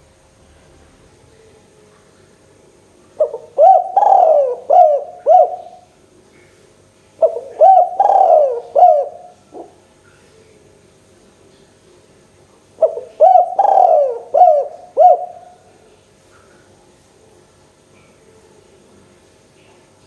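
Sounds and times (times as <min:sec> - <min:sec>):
dove cooing: 0:03.1 - 0:05.9, 0:07.2 - 0:09.8, 0:12.8 - 0:15.9.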